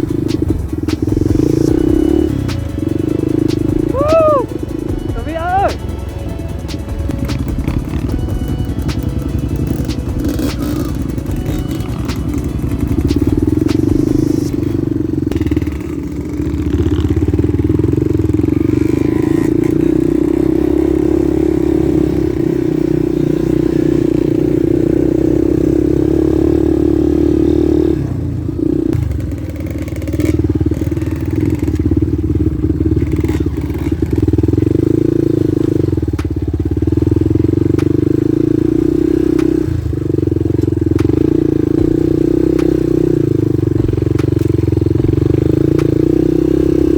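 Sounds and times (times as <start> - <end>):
motorcycle engine running: 0.0 - 46.9
motorcycle clattering over rough ground: 4.9 - 20.5, 28.9 - 38.3, 39.3 - 46.9.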